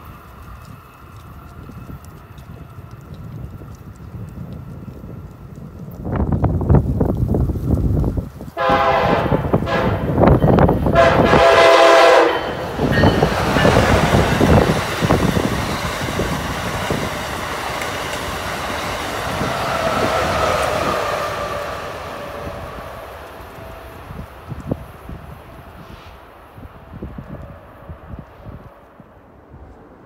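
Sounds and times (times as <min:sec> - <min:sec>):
train wheels rumbling and clicking: 0:00.0 - 0:30.0
train horn blasts: 0:08.6 - 0:14.7, 0:19.4 - 0:24.2.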